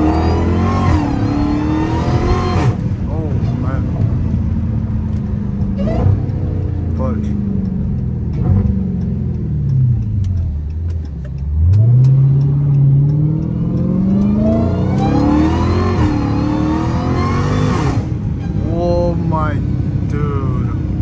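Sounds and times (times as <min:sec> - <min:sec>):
supercharger whine: 0:00.0 - 0:18.4
car engine revving and pulling hard: 0:00.0 - 0:21.0.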